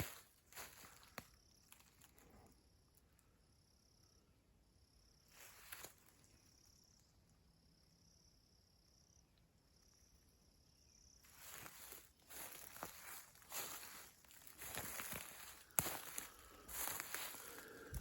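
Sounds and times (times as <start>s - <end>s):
footsteps in leaf litter: 0.0s - 1.2s, 11.3s - 18.0s.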